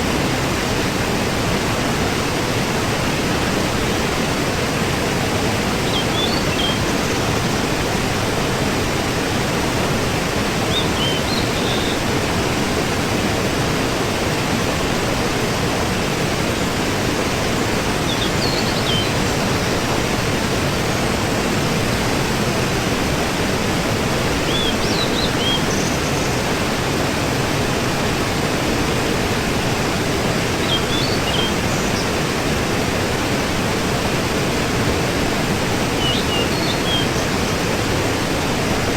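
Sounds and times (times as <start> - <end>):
waterfall rushing: 0.0 - 38.9
faint bird chirps: 5.9 - 7.1, 10.7 - 12.0, 18.1 - 19.2, 24.5 - 26.4, 30.6 - 32.1, 36.0 - 37.3.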